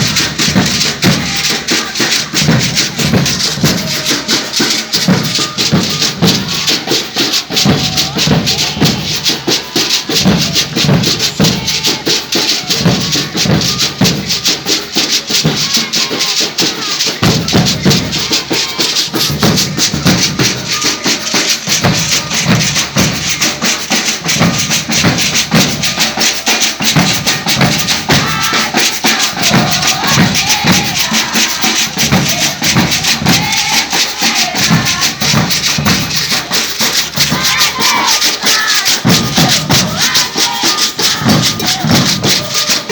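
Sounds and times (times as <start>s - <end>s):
drum ensemble playing: 0.0s - 42.9s
snare drums and shakers rattling: 0.0s - 42.9s.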